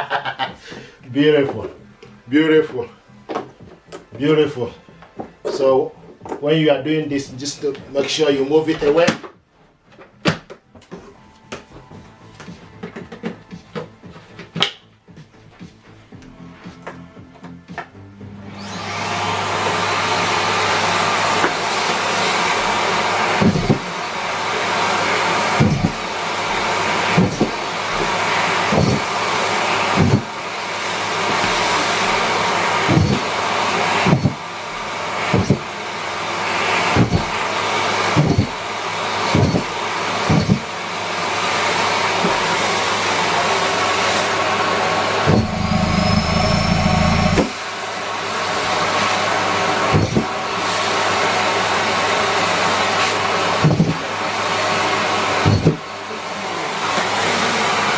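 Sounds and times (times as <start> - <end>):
vacuum cleaner humming: 18.2 - 57.9.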